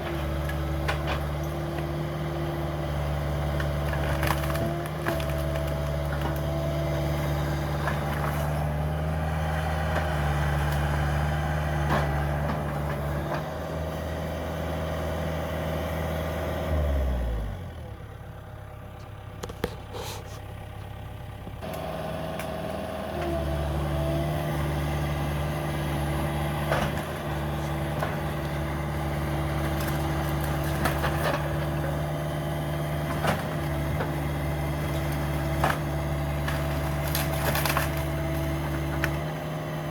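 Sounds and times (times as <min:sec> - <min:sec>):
demolition debris knocks and cracks: 0:00.0 - 0:02.0, 0:03.5 - 0:06.6, 0:07.3 - 0:08.8, 0:25.9 - 0:39.6
excavator diesel engine running: 0:00.0 - 0:39.9.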